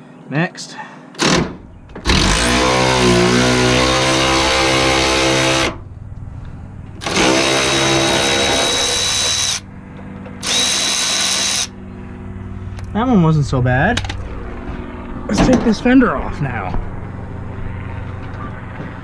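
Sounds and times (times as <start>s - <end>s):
power tool motor winding up: 2.1s - 5.8s, 7.0s - 9.6s, 10.4s - 11.7s.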